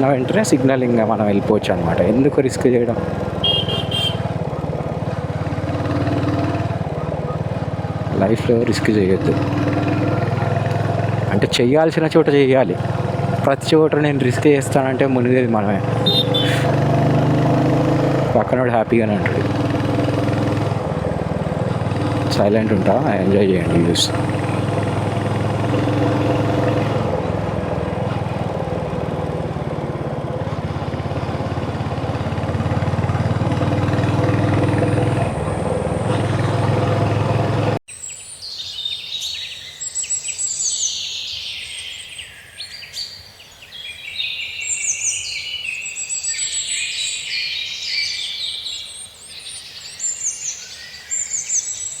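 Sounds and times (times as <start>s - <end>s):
motorcycle engine running: 0.0s - 37.8s
road and wind noise: 0.0s - 37.8s
birds chirping and singing: 13.5s - 20.7s, 22.4s - 26.3s, 37.9s - 52.0s.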